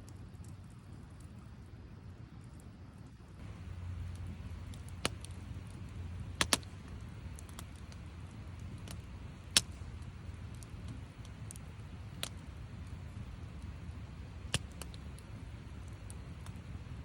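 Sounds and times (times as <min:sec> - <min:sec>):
low rumble: 0:03.4 - 0:10.7
campfire crackling pops: 0:03.4 - 0:17.0.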